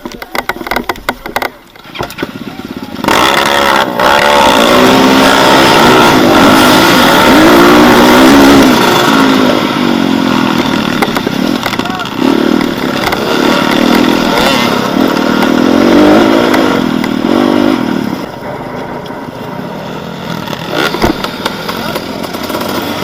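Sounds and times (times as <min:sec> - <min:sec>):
clicks and knocks: 0:00.0 - 0:02.3
motorcycle engine revving: 0:00.0 - 0:23.0.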